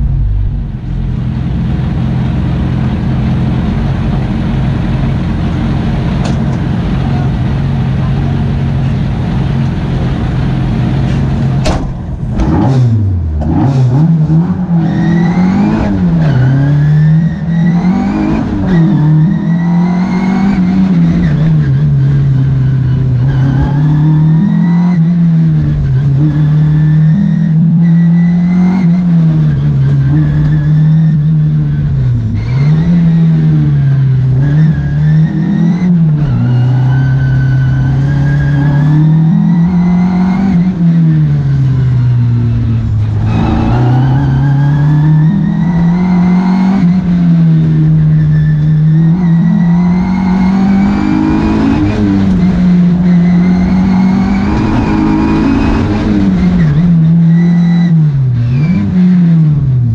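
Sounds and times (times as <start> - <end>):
car engine revving: 0.0 - 59.9
sharp knock: 11.6 - 12.5.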